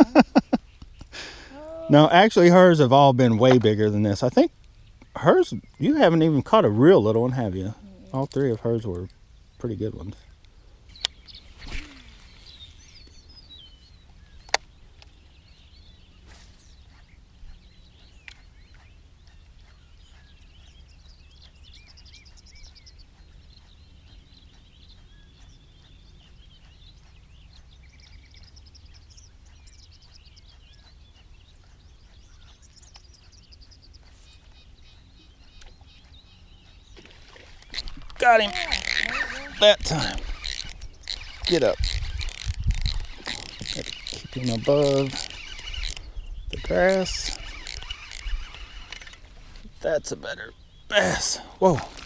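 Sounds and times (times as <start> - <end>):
birds chirping and singing: 0.0 - 52.0
sharp clicks: 14.1 - 15.2, 18.2 - 19.9, 21.4 - 49.4.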